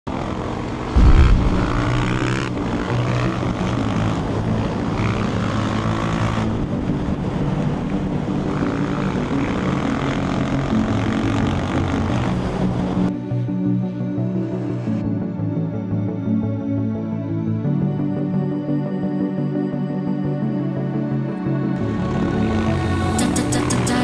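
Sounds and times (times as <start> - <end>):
motorcycle engine revving: 0.0 - 13.1, 21.8 - 24.0
wind on microphone: 0.9 - 2.8.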